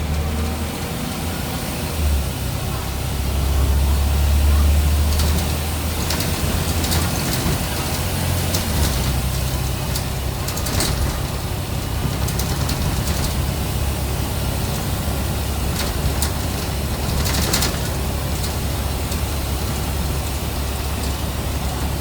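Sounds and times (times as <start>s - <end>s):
diesel bus engine running: 0.0s - 22.0s.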